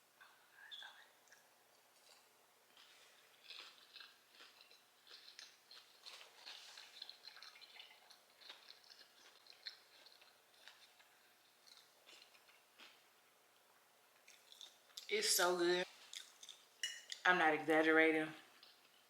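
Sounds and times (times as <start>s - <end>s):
crunchy chewing: 1.3s - 13.0s, 14.2s - 15.1s, 16.0s - 17.2s.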